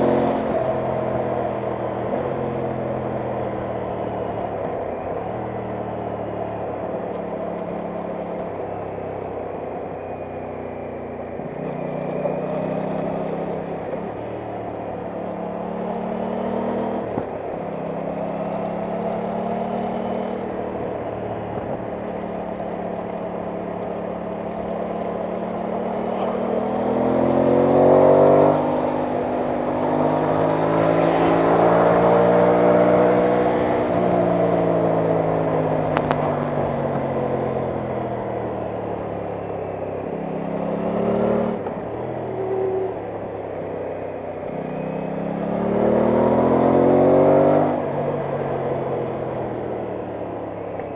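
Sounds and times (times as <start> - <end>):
motorcycle engine accelerating: 0.0 - 50.9.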